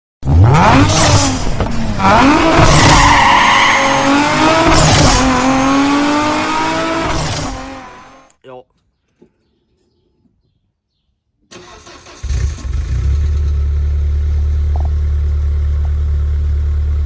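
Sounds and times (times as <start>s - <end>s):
car engine revving through gears: 0.2s - 8.3s, 11.6s - 15.0s.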